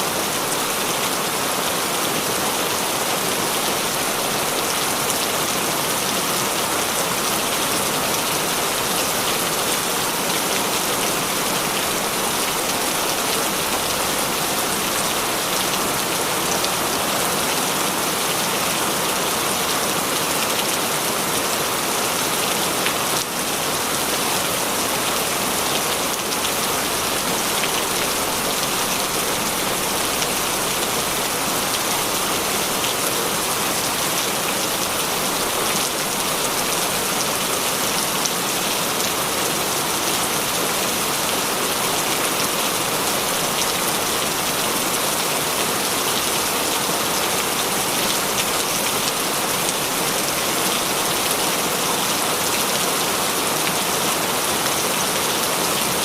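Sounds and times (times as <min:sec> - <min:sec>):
heavy rain hiss: 0:23.4 - 0:53.6.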